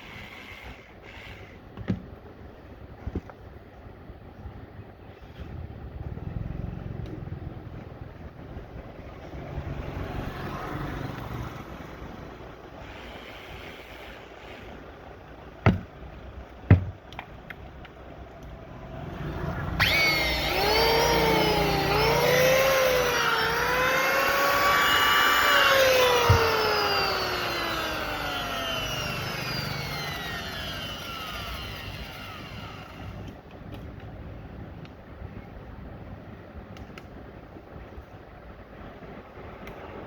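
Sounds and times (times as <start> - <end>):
sharp knocks: 15.6 - 15.9, 16.7 - 17.0
power tool motor spinning: 19.7 - 33.4.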